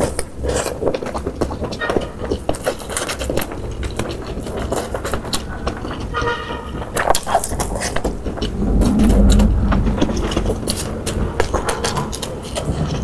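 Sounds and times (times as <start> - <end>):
chewing crunches: 0.0 - 13.0
low steady rumble: 3.7 - 13.0.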